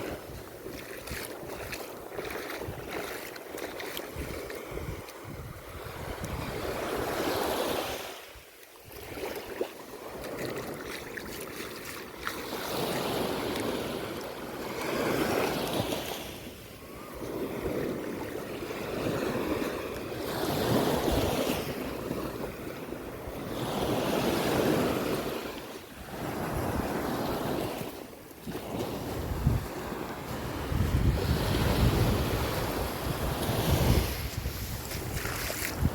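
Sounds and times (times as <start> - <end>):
wind gusting across microphone: 0.0 - 8.1, 28.6 - 35.9
waves breaking on shore: 0.0 - 35.9.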